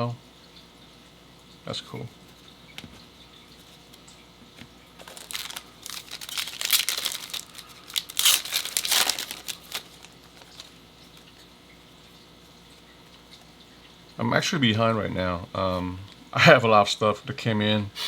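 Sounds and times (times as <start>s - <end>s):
foil wrapper tearing and crinkling: 5.0s - 11.3s.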